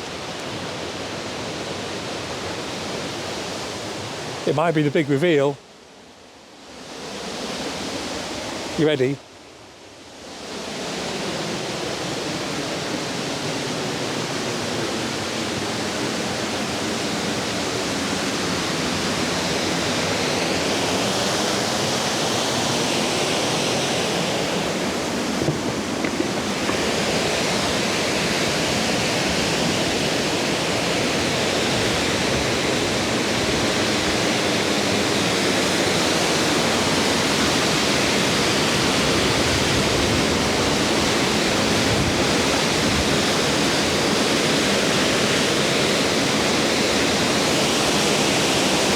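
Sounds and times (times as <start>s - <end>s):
waterfall rushing: 11.0s - 48.9s.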